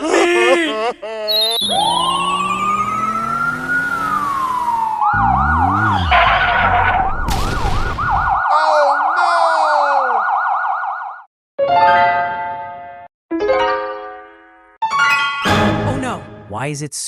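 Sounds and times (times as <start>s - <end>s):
cartoon sound effects: 1.3s - 3.9s, 5.1s - 7.8s
emergency siren wailing and yelping: 1.3s - 11.3s.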